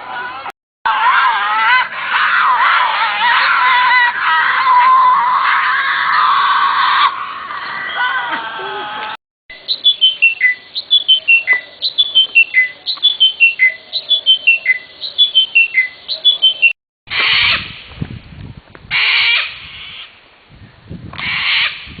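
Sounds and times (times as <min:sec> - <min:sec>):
bird calling descending notes: 0:06.1 - 0:16.8
harsh bird squawks: 0:09.6 - 0:17.8, 0:18.9 - 0:20.2, 0:21.2 - 0:21.9.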